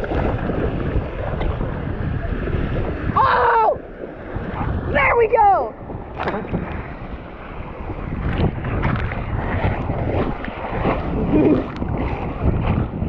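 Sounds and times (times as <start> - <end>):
ocean surf: 0.0 - 13.0
wind buffeting microphone: 0.0 - 13.0
knocks and splashes: 6.0 - 7.0, 8.2 - 13.0.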